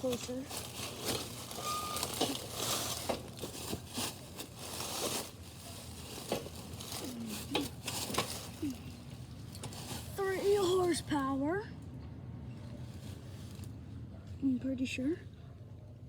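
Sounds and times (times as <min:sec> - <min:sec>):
small knocks and scrapes: 0:00.0 - 0:08.8, 0:09.5 - 0:10.2
handling noise rustling: 0:00.0 - 0:11.1.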